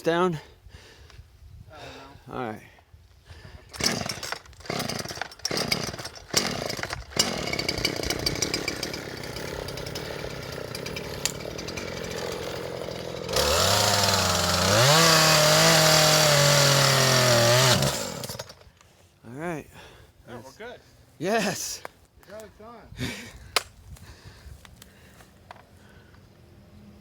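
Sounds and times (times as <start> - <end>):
chainsaw starter cord pulls: 3.7 - 18.8
chainsaw engine running: 3.8 - 18.7.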